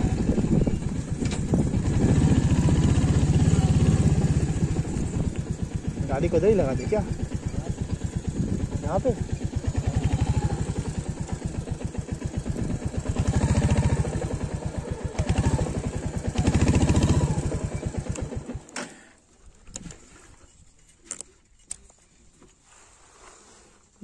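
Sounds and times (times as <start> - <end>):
motorcycle engine idling and revving: 0.0 - 18.8.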